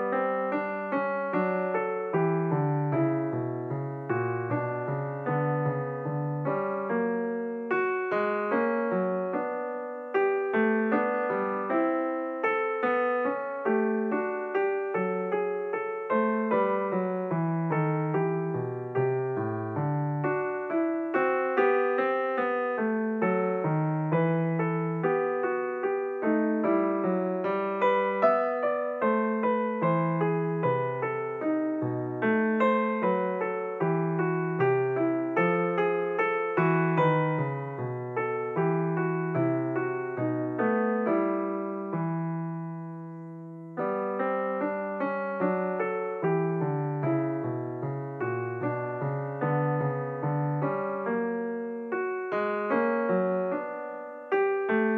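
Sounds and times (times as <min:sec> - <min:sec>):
piano music: 0:00.0 - 0:54.9.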